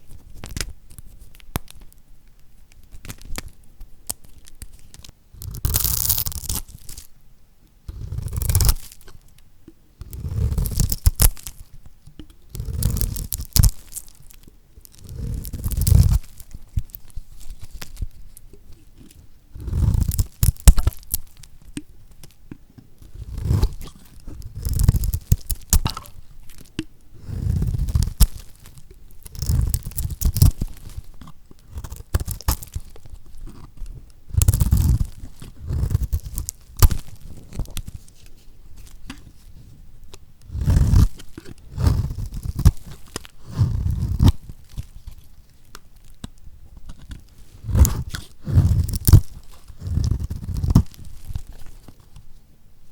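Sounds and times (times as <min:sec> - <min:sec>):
soap cut crackling crunch: 0:23.1 - 0:37.9.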